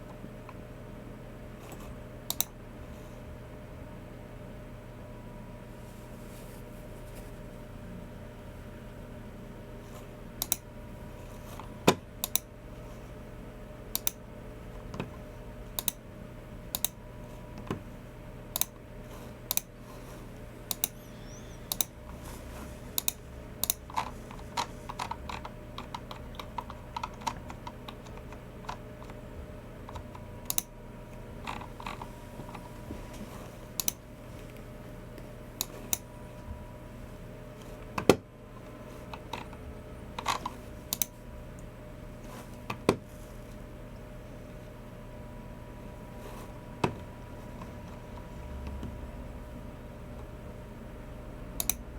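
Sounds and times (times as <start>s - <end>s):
faint steady hum: 0.0s - 51.9s
keyboard keystrokes: 23.0s - 29.2s.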